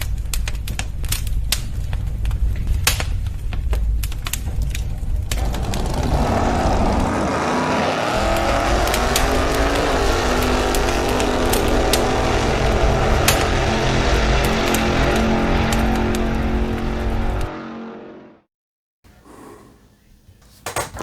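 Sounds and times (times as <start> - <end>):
car engine revving: 5.3 - 18.3.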